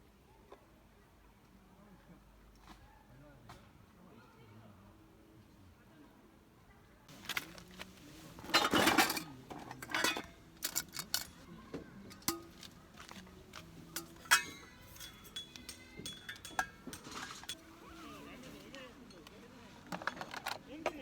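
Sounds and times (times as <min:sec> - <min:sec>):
dishes and utensils clinking: 0:07.1 - 0:19.2.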